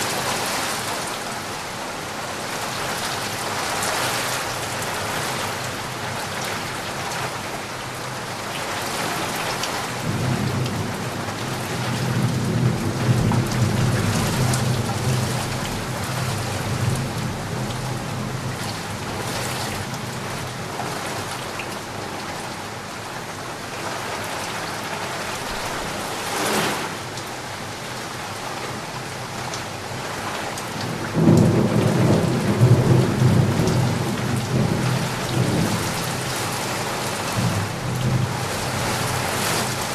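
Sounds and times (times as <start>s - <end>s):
heavy rain pouring: 0.0s - 39.9s
thunder rumbling: 30.9s - 39.2s.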